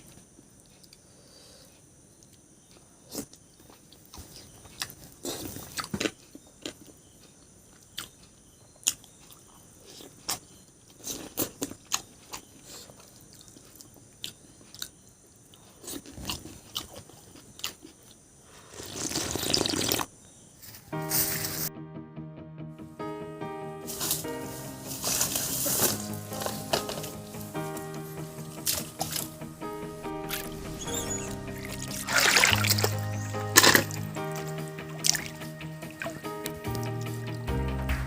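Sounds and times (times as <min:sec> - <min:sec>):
person chewing food: 0:00.6 - 0:20.1.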